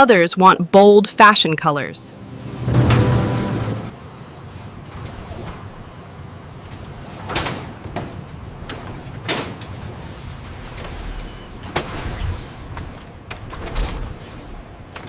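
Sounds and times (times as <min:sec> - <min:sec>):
factory machinery rumbling: 0:01.1 - 0:04.4.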